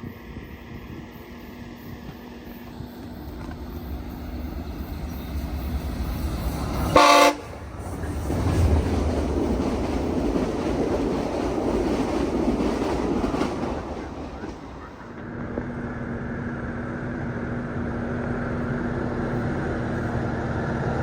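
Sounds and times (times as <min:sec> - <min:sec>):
train wheels rushing past: 0:00.0 - 0:15.5
train rumbling past: 0:00.0 - 0:21.0
train horn blast: 0:06.8 - 0:07.6.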